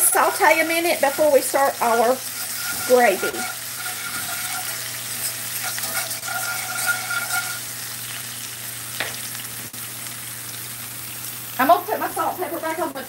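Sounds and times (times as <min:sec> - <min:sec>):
whisk scraping the pan: 0:00.0 - 0:08.4
onions sizzling in a skillet: 0:00.0 - 0:13.0.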